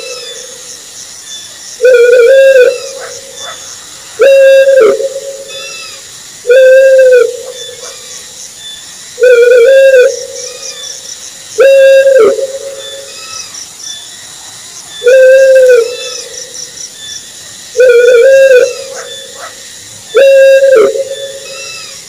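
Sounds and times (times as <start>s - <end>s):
owl hooting: 1.8s - 8.2s, 9.2s - 11.0s, 11.6s - 13.6s, 15.0s - 16.6s, 17.7s - 22.0s.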